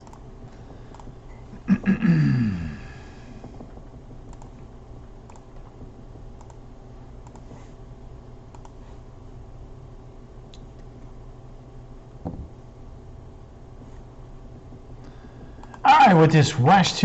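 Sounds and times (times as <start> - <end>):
low electrical hum: 0.0 - 17.0
computer key clicks: 4.3 - 4.5.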